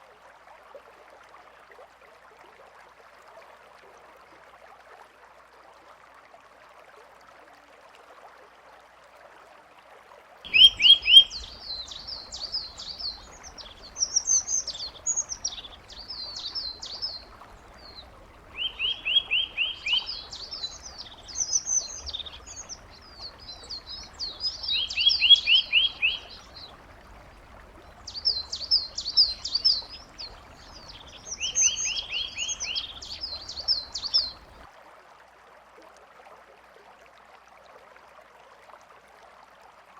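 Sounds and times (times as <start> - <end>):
songbird singing: 10.5 - 34.6
faint steady hiss: 10.5 - 34.7.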